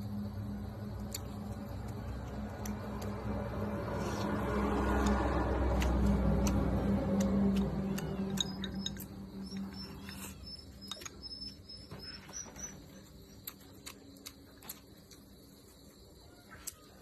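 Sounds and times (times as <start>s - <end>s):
chewing: 0.6s - 11.6s, 12.5s - 17.0s
small birds chirping: 7.7s - 15.3s.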